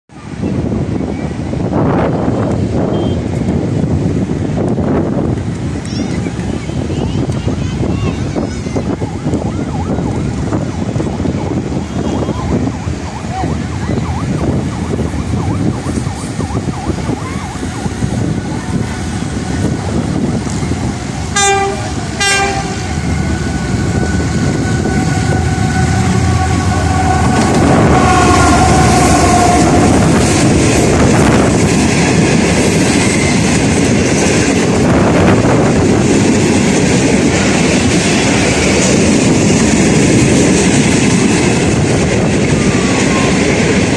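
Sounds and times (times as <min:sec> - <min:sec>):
train wheels clickety-clack: 0:02.6 - 0:09.5, 0:27.1 - 0:43.9
train horn blasts: 0:21.3 - 0:30.4.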